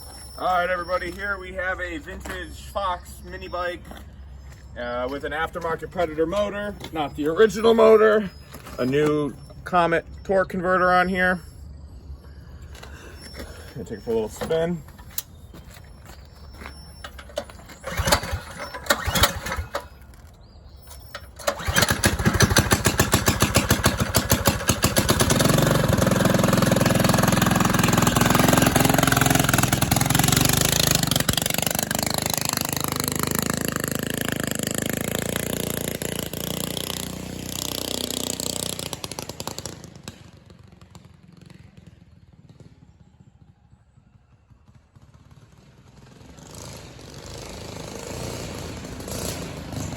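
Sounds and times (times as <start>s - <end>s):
mini bike engine running: 16.6s - 20.3s, 21.3s - 49.9s
small engine starting bursts: 16.7s - 43.5s.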